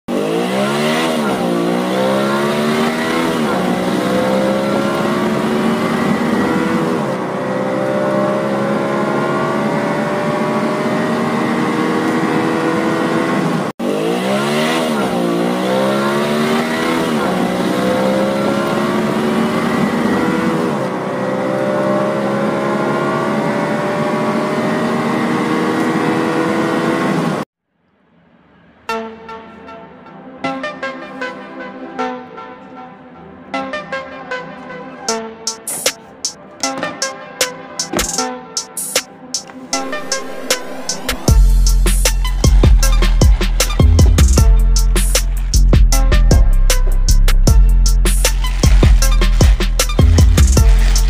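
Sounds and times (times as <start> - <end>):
race car engine revving: 0.1 - 27.5, 39.4 - 51.0.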